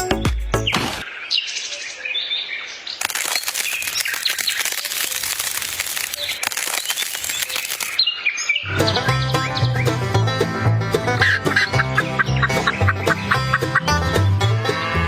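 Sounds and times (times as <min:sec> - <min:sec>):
small birds chirping: 0:00.0 - 0:10.1, 0:11.4 - 0:14.0
patter of small crackles: 0:03.0 - 0:08.1.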